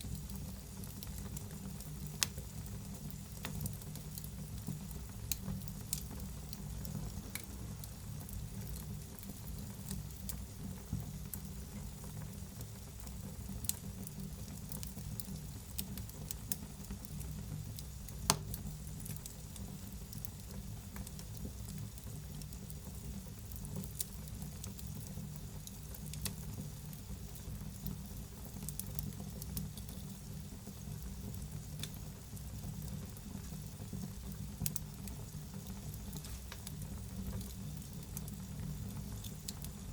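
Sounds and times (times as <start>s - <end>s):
wood fire crackling: 0.0s - 39.9s
fire popping: 13.0s - 39.9s.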